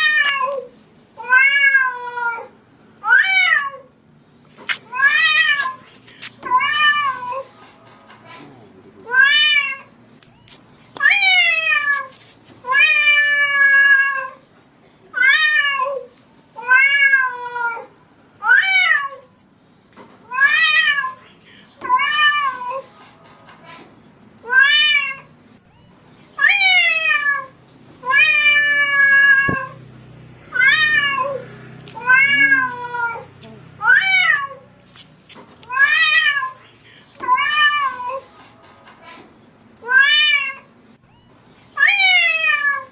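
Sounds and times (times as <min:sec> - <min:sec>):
cat meowing: 0:00.0 - 0:03.9, 0:04.7 - 0:07.5, 0:09.0 - 0:14.4, 0:15.2 - 0:19.3, 0:24.4 - 0:29.8, 0:30.5 - 0:34.7, 0:39.8 - 0:42.9.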